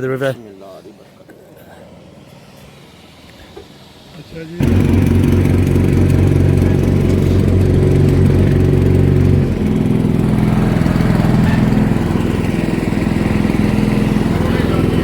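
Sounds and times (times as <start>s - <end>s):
motorboat engine running: 4.6s - 15.0s.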